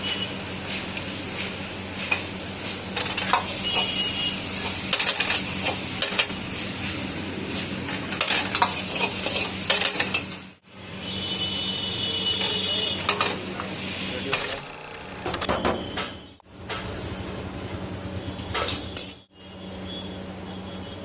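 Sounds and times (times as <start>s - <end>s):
metal spatula clanking and scraping: 7.9s - 10.4s.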